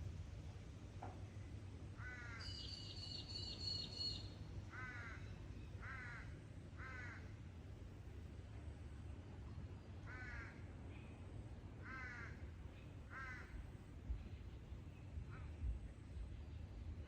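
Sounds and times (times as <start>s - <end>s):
crow cawing: 2.0s - 2.6s, 4.7s - 7.2s, 10.1s - 10.6s, 11.8s - 12.4s, 13.1s - 13.6s.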